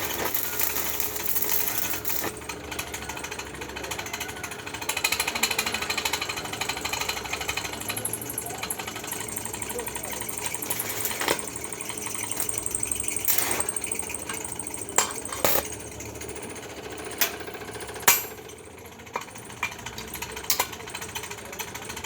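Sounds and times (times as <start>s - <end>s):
arc welding crackling: 0.0s - 2.9s, 8.3s - 15.7s.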